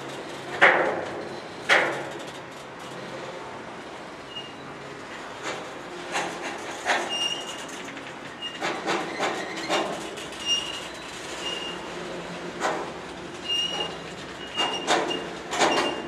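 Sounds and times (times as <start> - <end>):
steel wheels clanking over rails: 0.0 - 3.2, 5.1 - 16.0
high-pitched wheel squeals: 4.3 - 4.7, 10.4 - 11.9, 13.4 - 16.0.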